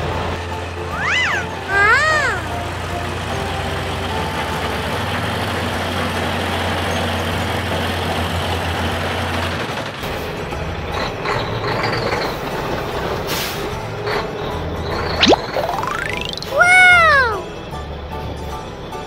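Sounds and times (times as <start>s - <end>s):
heavy vehicle engine running: 0.0s - 1.7s, 2.4s - 15.2s.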